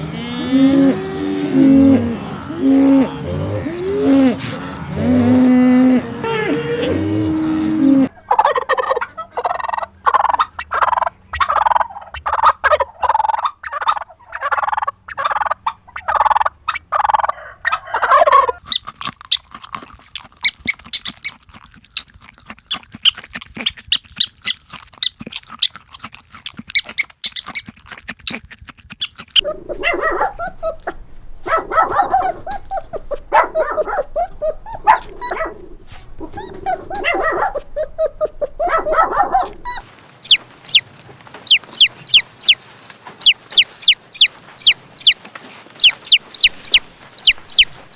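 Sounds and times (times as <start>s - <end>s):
poultry calling: 0.0s - 18.7s, 29.4s - 47.9s
high rapid chirping: 29.4s - 40.8s, 41.5s - 42.6s, 43.2s - 45.2s, 45.8s - 47.9s.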